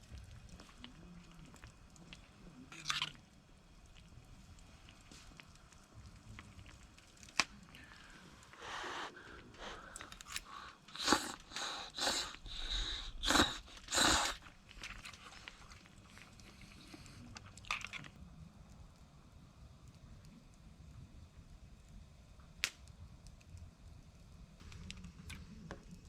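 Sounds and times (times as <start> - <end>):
crunchy food chewing: 0.0 - 18.2.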